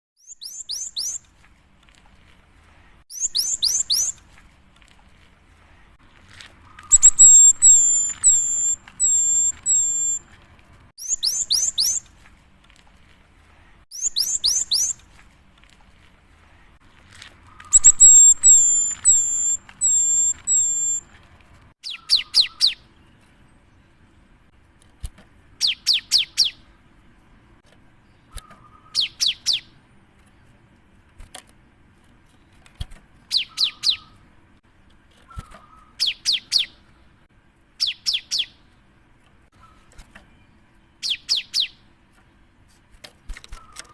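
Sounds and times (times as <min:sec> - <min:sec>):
bird singing high notes: 0:06.8 - 0:10.2, 0:17.5 - 0:21.0.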